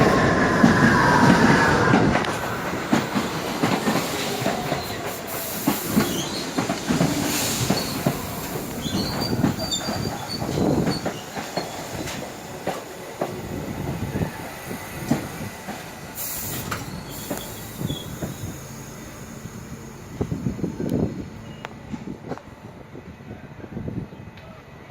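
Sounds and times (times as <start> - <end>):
train wheels clickety-clack: 0.0 - 18.8
high wheel squeals: 7.3 - 12.2, 16.2 - 19.8.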